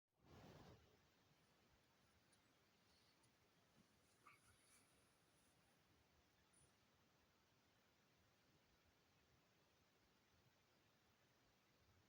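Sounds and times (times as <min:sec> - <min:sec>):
faint background hiss: 0:00.2 - 0:12.0
soft rustle: 0:02.2 - 0:06.9.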